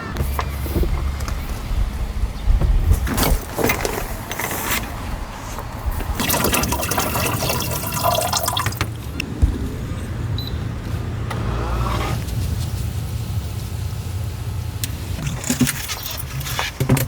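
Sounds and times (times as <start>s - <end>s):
handling knocks: 0.0s - 6.2s
liquid pouring into container: 6.2s - 9.0s.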